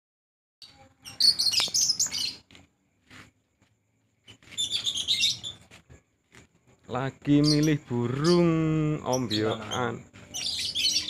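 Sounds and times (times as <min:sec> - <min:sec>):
lovebirds chirping shrilly: 0:00.6 - 0:02.5, 0:04.2 - 0:05.8, 0:07.2 - 0:11.0.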